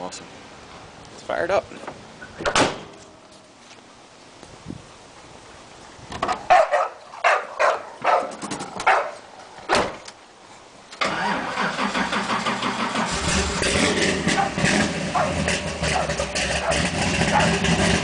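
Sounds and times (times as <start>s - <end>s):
vee eight engine cranking and starting: 11.0s - 18.0s.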